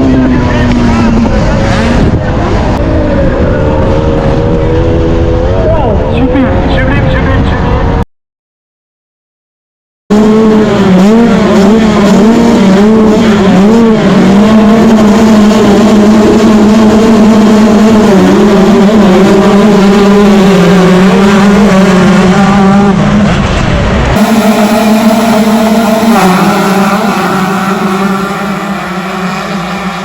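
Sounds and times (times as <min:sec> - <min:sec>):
two-stroke motorcycle engine revving: 0:10.1 - 0:30.0.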